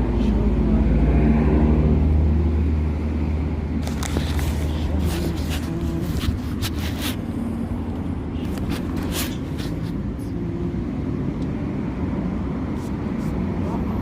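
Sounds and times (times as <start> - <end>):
short rustles and clicks: 3.8 - 7.3.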